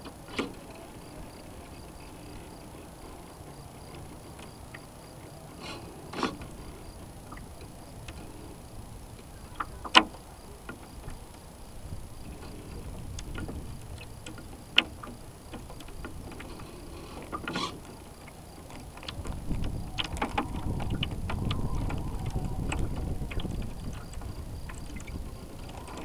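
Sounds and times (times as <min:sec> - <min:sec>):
water sloshing around hull: 0:00.0 - 0:26.0
wind rumbling: 0:00.0 - 0:26.0.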